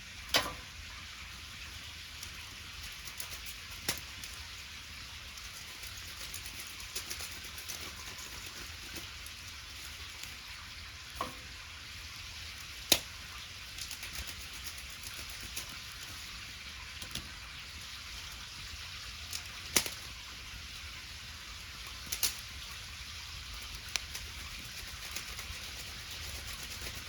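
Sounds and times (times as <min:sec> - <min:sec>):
wood bonfire crackling: 0:00.1 - 0:27.0.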